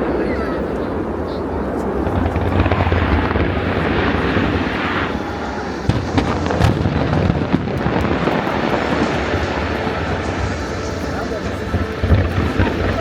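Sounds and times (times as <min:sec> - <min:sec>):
fireworks crackling and popping: 0:01.8 - 0:13.0
fireworks shells bursting: 0:02.0 - 0:13.0.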